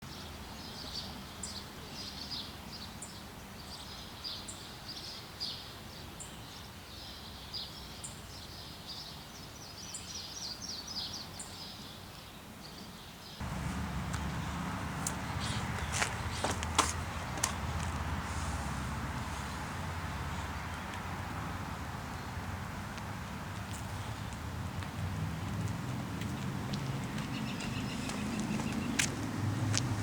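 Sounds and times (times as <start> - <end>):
birds chirping: 13.4 - 30.0.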